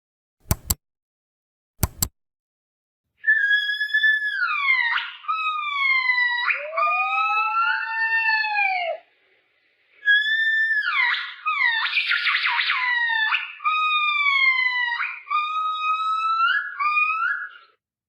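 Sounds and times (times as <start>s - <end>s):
quick double click: 0.4s - 0.8s, 1.8s - 2.1s
animal high-pitched cries: 3.3s - 9.0s, 10.1s - 17.8s.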